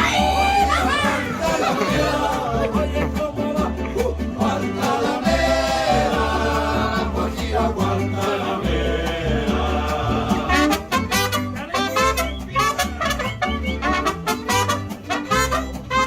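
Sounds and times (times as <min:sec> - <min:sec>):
person singing: 0:00.0 - 0:10.7
bass line: 0:00.0 - 0:16.0.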